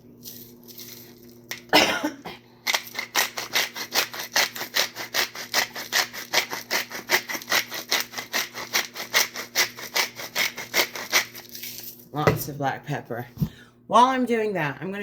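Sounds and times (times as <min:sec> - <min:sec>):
pepper mill grinding: 0:00.2 - 0:01.7, 0:02.6 - 0:12.1.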